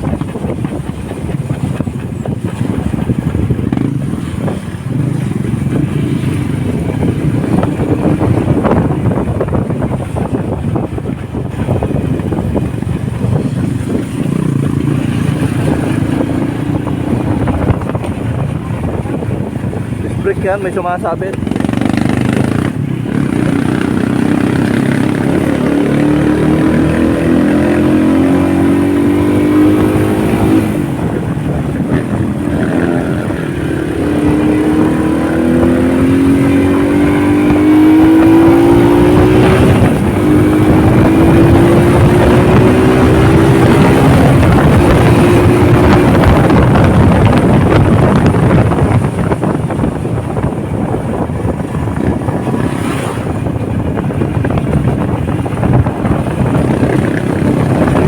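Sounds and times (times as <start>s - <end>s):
constant rushing noise: 0.0s - 58.0s
motorcycle engine accelerating: 0.0s - 58.0s.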